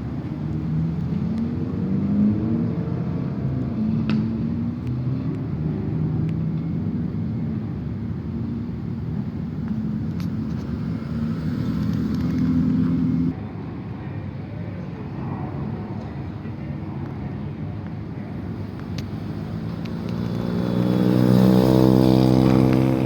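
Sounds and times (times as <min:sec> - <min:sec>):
car engine running: 0:09.7 - 0:13.3, 0:18.5 - 0:23.0.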